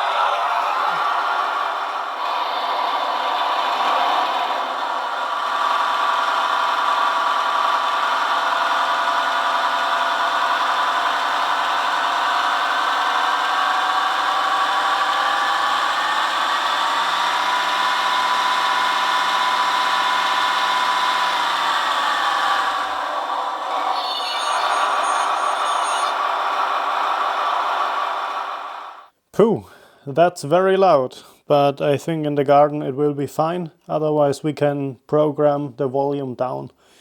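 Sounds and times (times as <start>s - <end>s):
model locomotive diesel engine sound: 5.4s - 29.0s.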